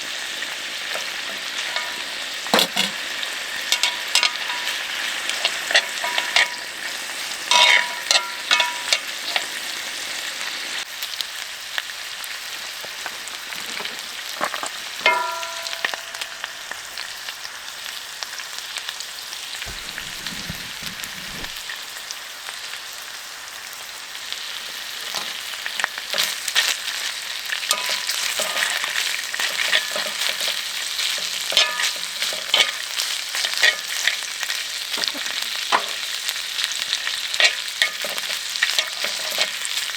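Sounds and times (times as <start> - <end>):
food sizzling in a pan: 0.0 - 39.9
metal utensils clinking: 0.9 - 9.5, 13.7 - 17.0, 19.7 - 21.6, 27.7 - 34.2, 37.4 - 39.7.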